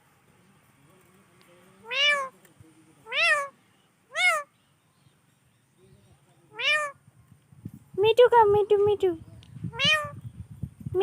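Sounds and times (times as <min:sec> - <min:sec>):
parrot meow-like calls: 0:01.8 - 0:02.3, 0:03.1 - 0:03.5, 0:04.1 - 0:04.5, 0:06.5 - 0:07.0, 0:09.7 - 0:10.2.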